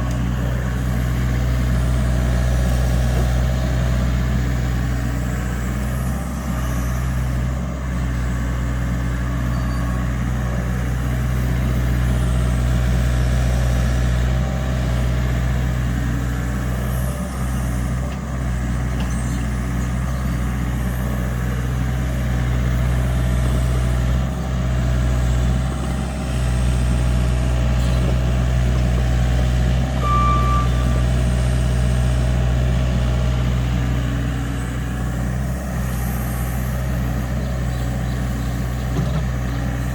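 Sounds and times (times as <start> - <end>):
excavator diesel engine running: 0.0 - 39.9
short high tone: 30.0 - 31.0.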